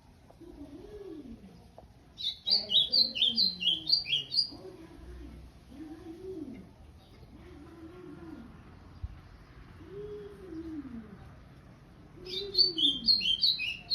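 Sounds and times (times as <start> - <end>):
songbird chirping: 0.0 - 5.4, 6.4 - 7.4, 8.2 - 13.9
dove cooing: 0.3 - 1.6, 2.5 - 8.7, 9.8 - 11.4, 12.1 - 13.9.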